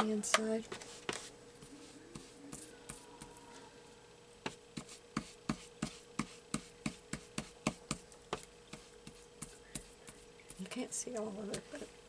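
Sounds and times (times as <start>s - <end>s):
ink pad tapping paper: 2.1s - 3.0s, 4.4s - 10.8s.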